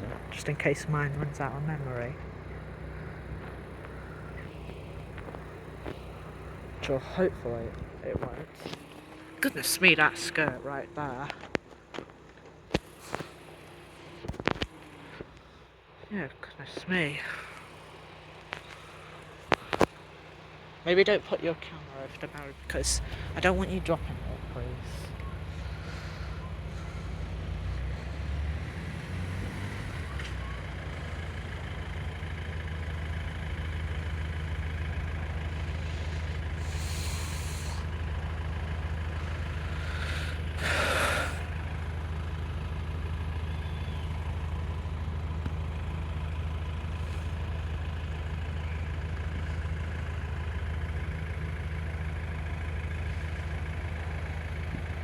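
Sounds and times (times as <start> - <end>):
diesel vehicle idling: 0.0 - 55.0
air brake hisses: 36.6 - 37.9.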